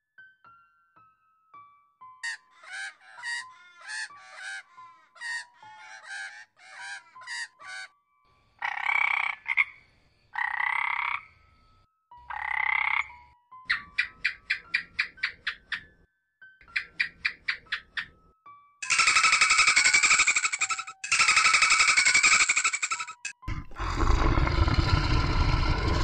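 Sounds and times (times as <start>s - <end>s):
frog croaking: 8.6s - 9.8s, 10.4s - 11.4s, 12.3s - 13.2s, 18.9s - 26.0s.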